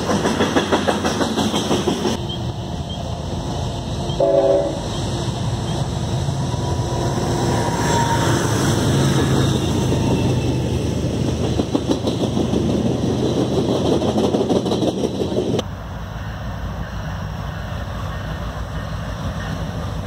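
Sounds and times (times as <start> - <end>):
freight train cars clattering: 0.0 - 15.6
diesel locomotives rumbling: 0.0 - 20.0.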